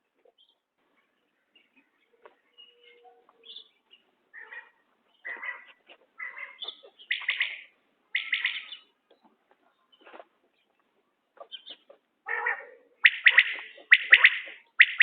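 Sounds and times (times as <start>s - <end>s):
quail calling: 4.3s - 8.9s, 11.4s - 15.0s.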